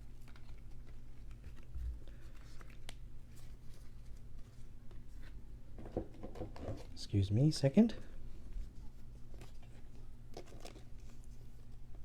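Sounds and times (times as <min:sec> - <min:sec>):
trading cards rustling and clicking: 0:00.0 - 0:05.0.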